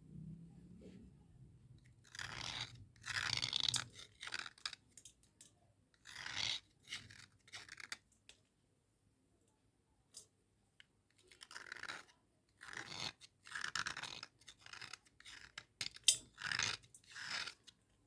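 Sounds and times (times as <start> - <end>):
slate pencils crunching and scraping: 1.8 - 5.1, 6.0 - 8.0, 11.1 - 17.8.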